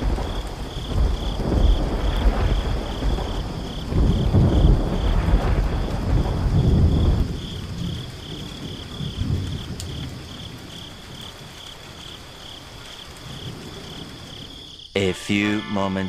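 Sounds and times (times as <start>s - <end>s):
thunder rumbling: 0.0s - 10.6s
crickets chirping: 0.0s - 16.0s
faint rain hiss: 0.0s - 16.0s.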